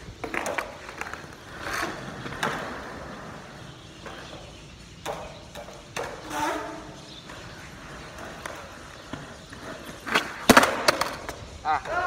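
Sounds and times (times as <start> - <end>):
skateboard clacking on ground: 0.0 - 12.0
skateboard rolling on concrete: 0.0 - 12.0.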